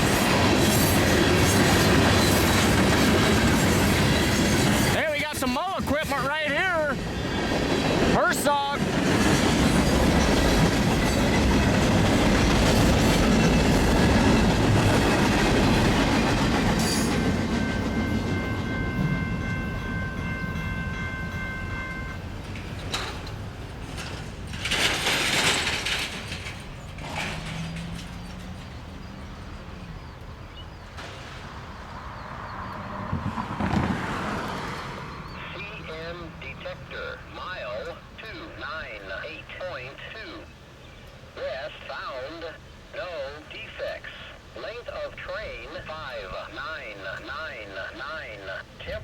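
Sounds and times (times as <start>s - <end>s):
wheels clacking over rail joints: 0.0s - 35.2s
freight train passing: 0.0s - 49.0s.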